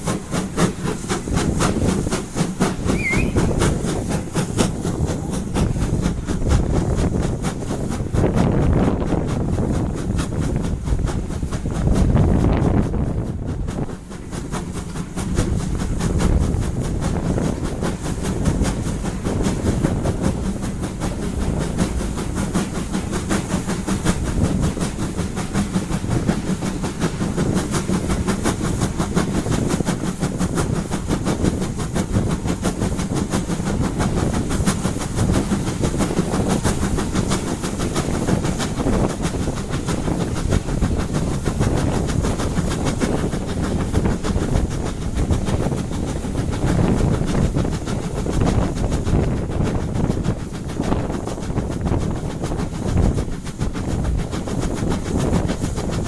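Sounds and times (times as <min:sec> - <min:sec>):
train wheels clattering on track: 0:00.0 - 0:56.0.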